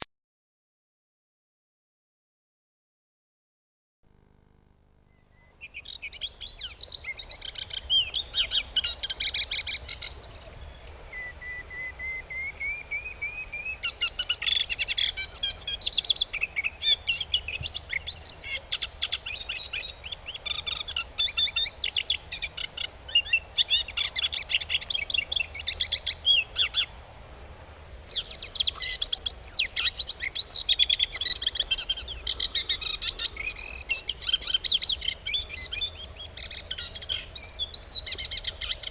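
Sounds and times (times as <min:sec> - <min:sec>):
birds chirping and twittering: 0:05.1 - 0:27.1, 0:28.1 - 0:38.9
slow rising bird whistle: 0:11.1 - 0:14.4.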